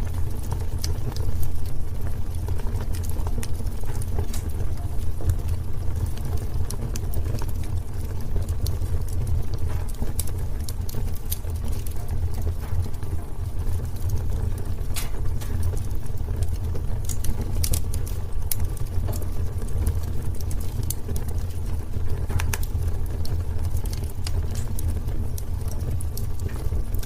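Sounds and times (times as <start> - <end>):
fire burning in a fireplace: 0.0 - 27.0
fire crackles and pops: 0.0 - 27.0.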